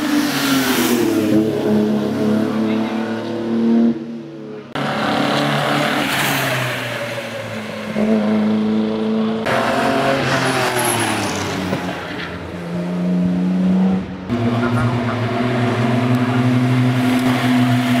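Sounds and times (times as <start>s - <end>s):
racing car engines revving: 0.0s - 18.0s.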